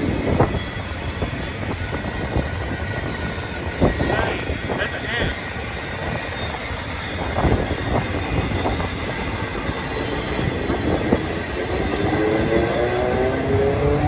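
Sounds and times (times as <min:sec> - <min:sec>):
freight train wheels rumbling: 0:00.0 - 0:14.0
rising engine note: 0:11.6 - 0:14.0.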